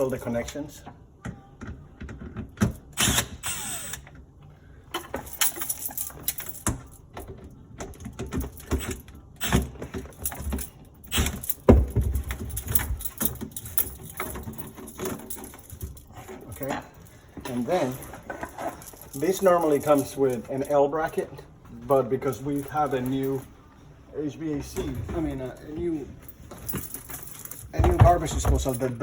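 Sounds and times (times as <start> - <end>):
hand tools clicking and knocking: 26.5 - 29.0.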